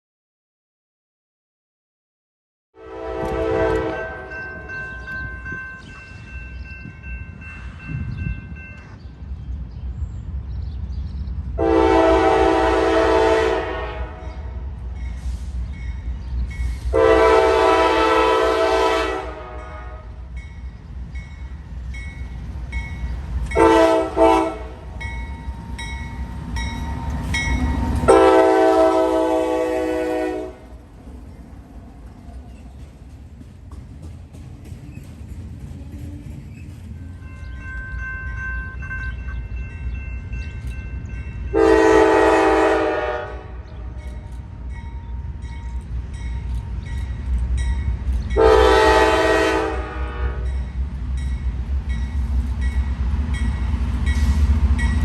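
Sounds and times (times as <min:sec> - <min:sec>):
locomotive air horn: 0:02.8 - 0:04.7, 0:11.6 - 0:14.6, 0:16.9 - 0:20.2, 0:23.6 - 0:24.9, 0:28.1 - 0:30.6, 0:41.5 - 0:44.0, 0:48.4 - 0:50.6
low train rumble: 0:02.8 - 0:55.0.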